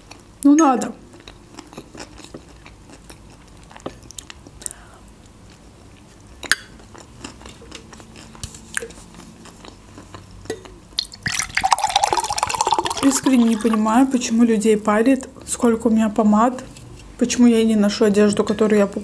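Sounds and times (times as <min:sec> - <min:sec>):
person chewing food: 0:01.1 - 0:14.0.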